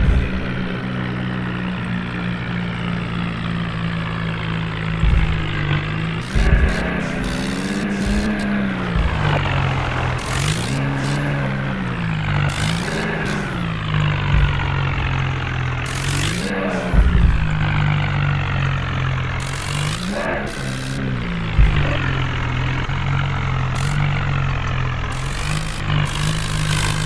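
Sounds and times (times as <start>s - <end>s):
tractor diesel engine revving: 0.0s - 27.0s
hissing bursts: 5.0s - 11.5s, 12.2s - 18.6s, 19.3s - 22.8s, 23.7s - 24.4s, 25.0s - 27.0s.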